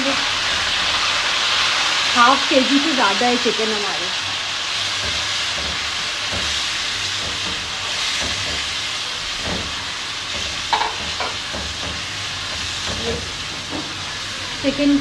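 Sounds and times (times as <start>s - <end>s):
chicken sizzling in hot oil: 0.0s - 15.0s
spatula stirring: 4.3s - 14.1s.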